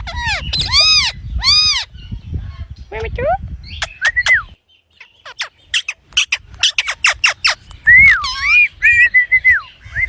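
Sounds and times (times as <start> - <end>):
parrot squawking: 0.0 - 1.9, 5.2 - 9.2.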